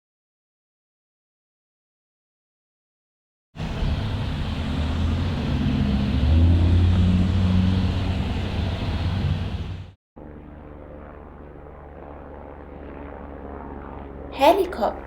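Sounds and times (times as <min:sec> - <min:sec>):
car engine running: 0:03.6 - 0:09.9.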